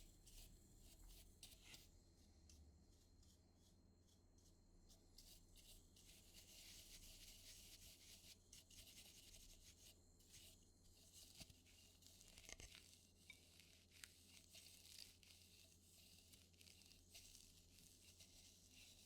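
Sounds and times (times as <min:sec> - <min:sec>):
scratchy rubbing on a surface: 0:05.2 - 0:19.0.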